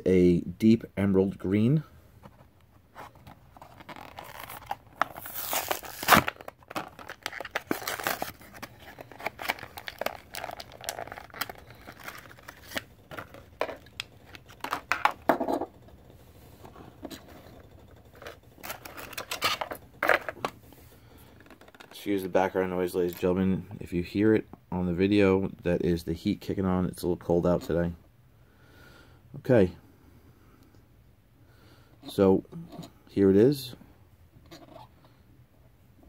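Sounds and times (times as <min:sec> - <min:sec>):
cardboard and plastic tearing: 0:03.6 - 0:15.2, 0:18.2 - 0:20.4
packaging snapping: 0:03.6 - 0:15.2.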